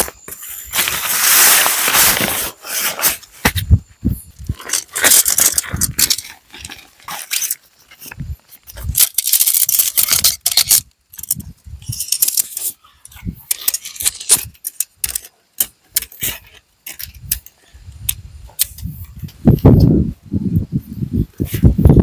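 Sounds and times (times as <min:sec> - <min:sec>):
small hard objects clinking: 0:04.4 - 0:17.5.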